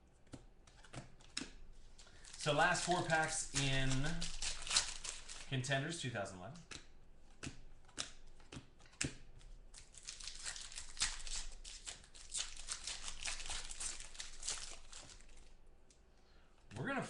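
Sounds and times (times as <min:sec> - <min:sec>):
card wrappers tearing and crinkling: 0:00.7 - 0:06.1, 0:07.9 - 0:15.6.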